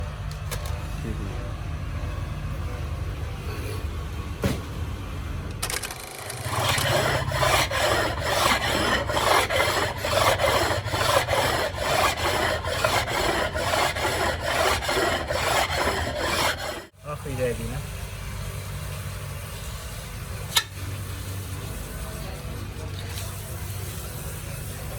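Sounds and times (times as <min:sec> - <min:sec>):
rasping tool strokes: 0:06.2 - 0:16.9.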